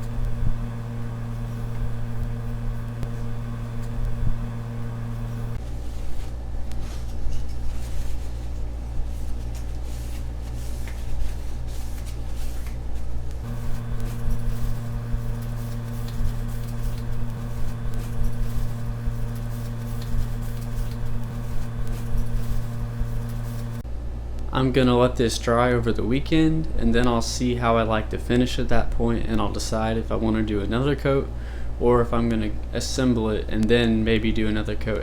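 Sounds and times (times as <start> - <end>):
electric motor hum: 0.0 - 5.6, 13.3 - 23.8
scraping and handling noises: 0.0 - 23.8.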